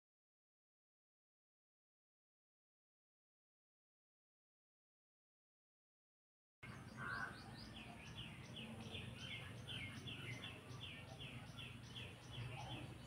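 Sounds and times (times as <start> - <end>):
bird chirping: 6.6 - 13.0.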